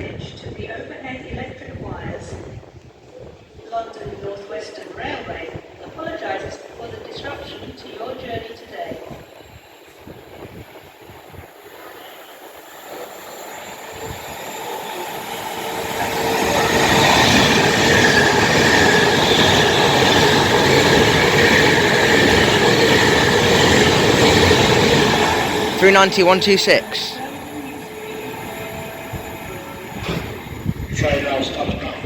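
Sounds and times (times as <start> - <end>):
train wheels rushing on rail: 7.5 - 32.0.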